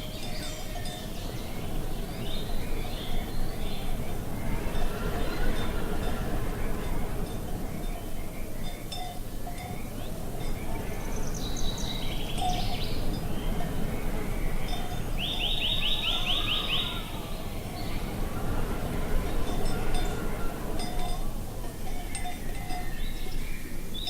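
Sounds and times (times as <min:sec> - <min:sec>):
low background rush: 0:00.0 - 0:24.0
songbirds chirping: 0:00.0 - 0:24.0
bird trill: 0:09.5 - 0:21.3.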